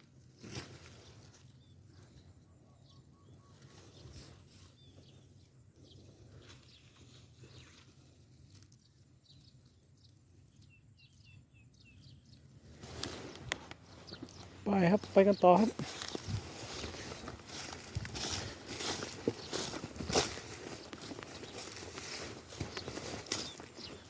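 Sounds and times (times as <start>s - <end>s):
footsteps through vegetation: 0.0s - 2.0s, 12.6s - 24.0s
small birds chirping: 0.2s - 24.0s.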